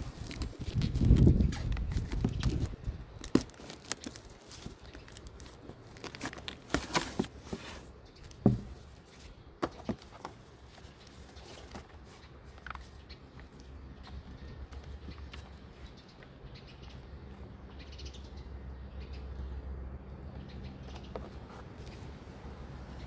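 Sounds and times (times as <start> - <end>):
packaging tearing and crinkling: 0.0 - 7.5.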